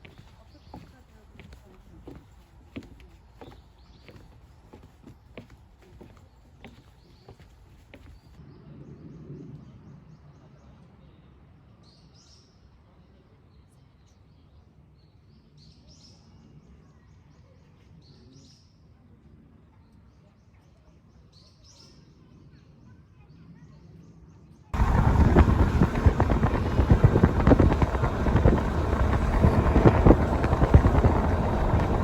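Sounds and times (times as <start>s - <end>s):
low background rumble: 24.8s - 32.0s.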